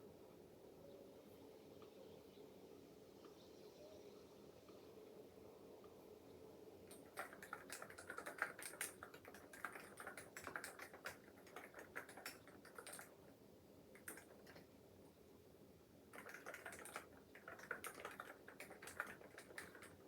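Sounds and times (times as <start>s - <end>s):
mechanical keyboard key clicks: 6.9s - 13.1s, 14.0s - 14.6s, 16.2s - 20.0s.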